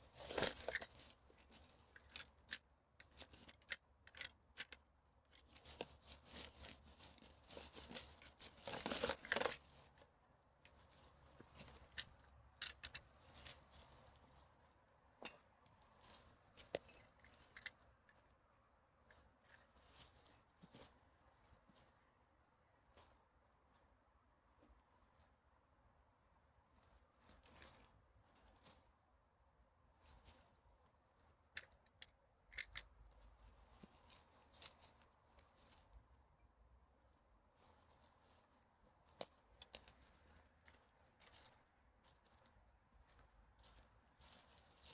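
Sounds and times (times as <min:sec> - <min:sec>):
litter rustling: 0:00.0 - 0:04.3, 0:05.3 - 0:14.5
litter rustling and crinkling: 0:00.0 - 0:14.9, 0:15.7 - 0:18.3, 0:19.0 - 0:22.2, 0:26.7 - 0:29.0, 0:30.0 - 0:30.6, 0:32.5 - 0:36.1, 0:37.5 - 0:44.9.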